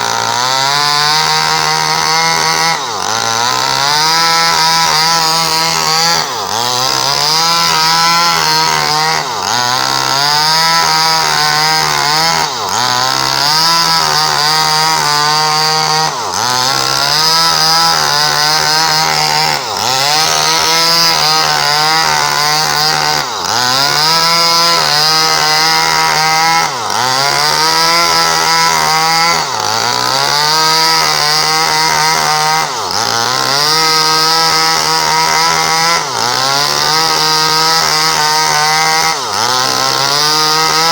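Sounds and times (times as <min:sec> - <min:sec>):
chainsaw sawing wood at high revs: 0:00.0 - 0:40.9.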